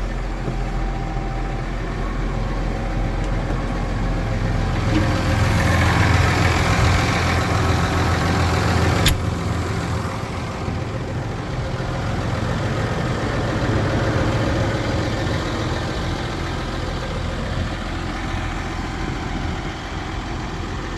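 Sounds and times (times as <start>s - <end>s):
tractor engine idling: 0.0s - 20.9s
sharp click: 9.0s - 9.3s.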